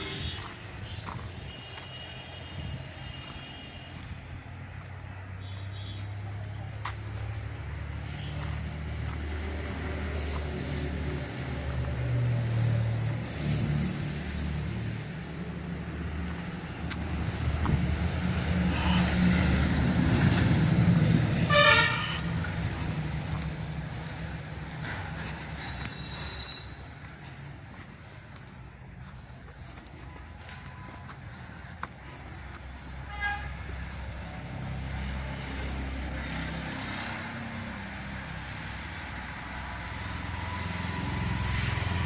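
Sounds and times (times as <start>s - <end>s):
vehicle engine humming: 0.0s - 42.0s
horn toot: 21.3s - 22.4s, 33.1s - 33.7s.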